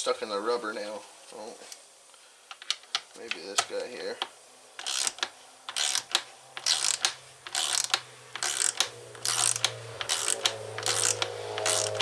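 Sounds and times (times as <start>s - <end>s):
ratchet wrench clicking: 4.8s - 12.0s.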